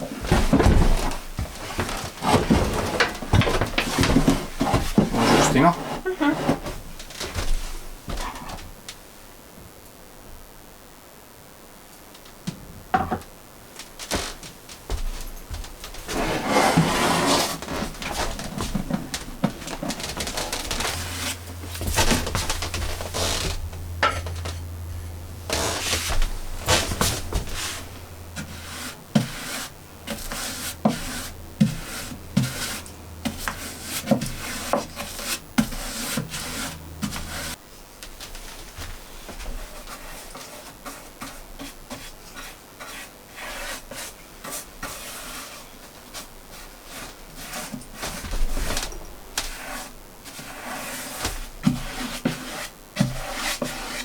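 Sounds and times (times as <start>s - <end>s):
rubbing and scraping on wood: 0.0s - 8.7s, 14.0s - 37.6s, 38.3s - 54.0s
low steady hum: 14.7s - 39.8s.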